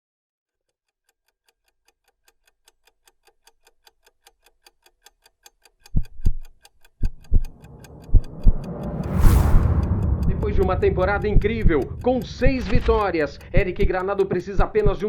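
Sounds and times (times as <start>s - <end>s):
clock ticking: 1.6s - 15.0s
deep low thumps: 7.2s - 14.0s.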